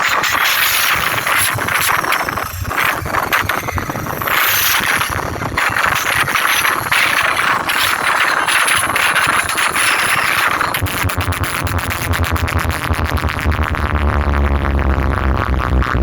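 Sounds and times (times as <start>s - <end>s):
high gliding sweeps: 0.0s - 10.8s
harsh noise from loudspeakers: 0.0s - 16.0s.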